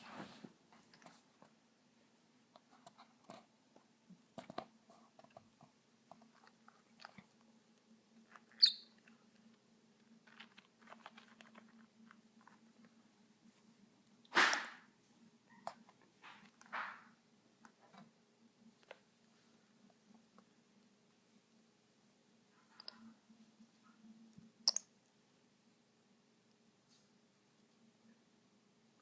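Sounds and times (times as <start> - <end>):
bird pecking and scratching: 2.6 - 13.0
bird chirp: 8.6 - 9.0.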